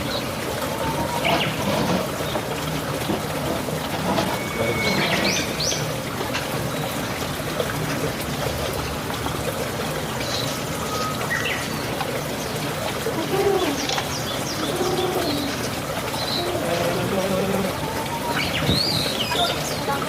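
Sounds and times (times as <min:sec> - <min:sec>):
pigeons cooing: 0:12.8 - 0:20.0.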